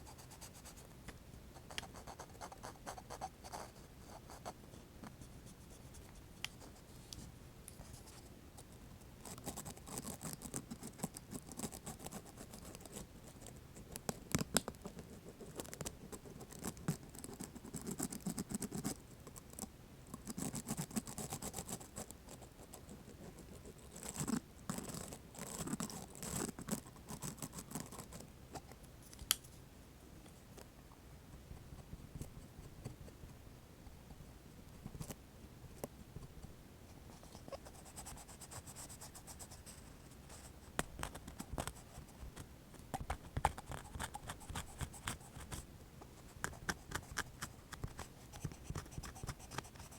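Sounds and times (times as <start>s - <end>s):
earpick scratching and clicking: 42.4s - 45.6s.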